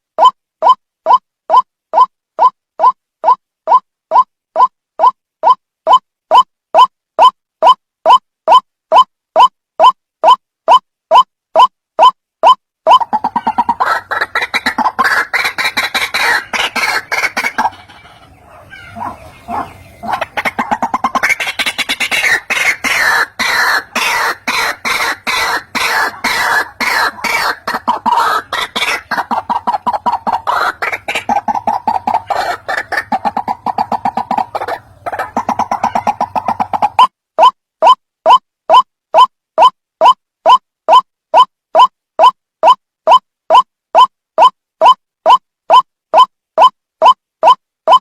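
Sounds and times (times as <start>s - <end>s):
bird harsh clucking call: 12.9s - 38.4s.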